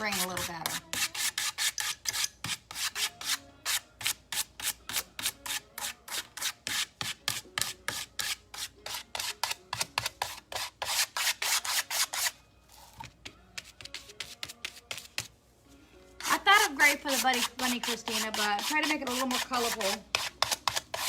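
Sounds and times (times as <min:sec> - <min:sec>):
paintbrush scratching on wood: 0:16.2 - 0:21.0.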